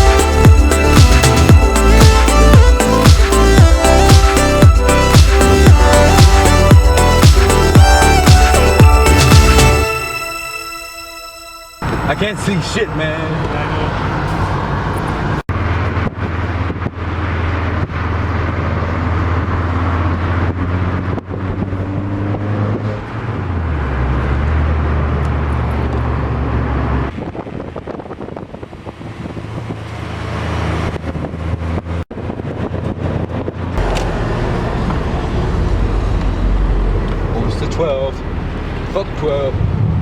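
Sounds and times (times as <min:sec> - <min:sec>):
car engine: 0:00.0 - 0:40.0
road noise inside car: 0:11.8 - 0:40.0.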